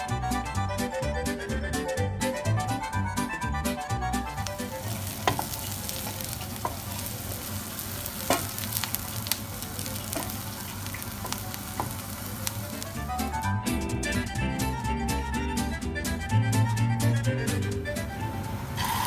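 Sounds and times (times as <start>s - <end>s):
food sizzling in a frying pan: 4.4s - 13.5s, 18.0s - 19.0s
spatula clicking and knocking: 5.2s - 7.0s, 8.2s - 8.7s, 10.0s - 10.4s, 11.0s - 12.0s.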